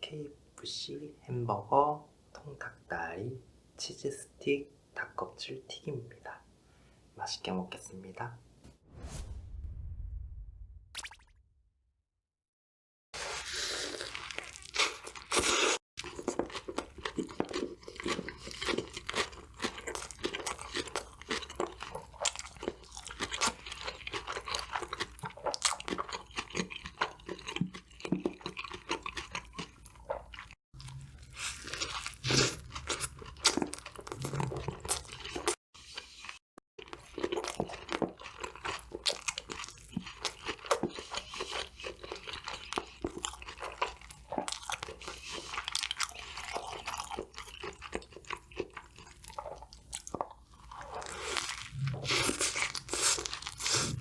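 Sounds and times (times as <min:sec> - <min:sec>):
crunching and chewing fried food: 0:13.2 - 0:54.0.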